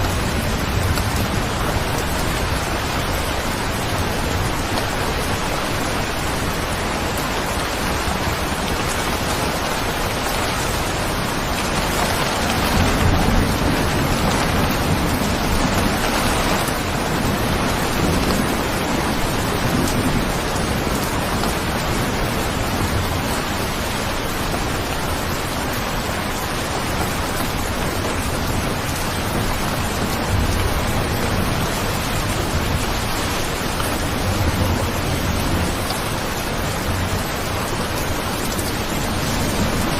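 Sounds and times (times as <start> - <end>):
heavy rain: 0.0 - 39.9
thunder rolling: 7.8 - 23.6.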